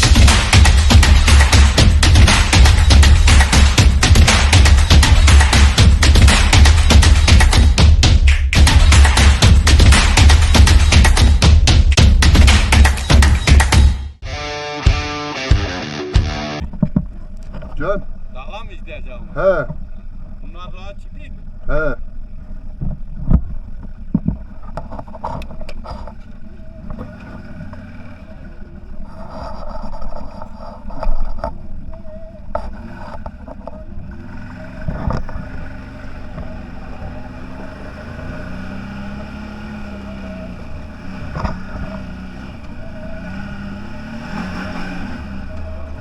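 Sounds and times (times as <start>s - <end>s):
knocks and rattles: 0.0s - 14.1s
off-road vehicle engine running: 0.0s - 14.3s, 15.0s - 46.0s.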